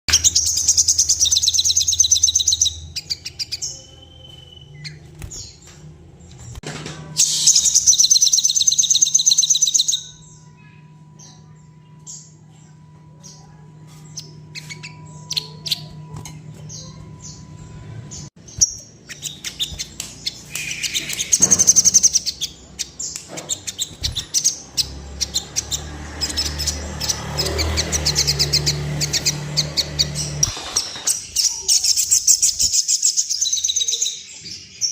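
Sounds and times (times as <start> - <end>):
bird trilling: 7.2 - 12.4, 13.2 - 34.2.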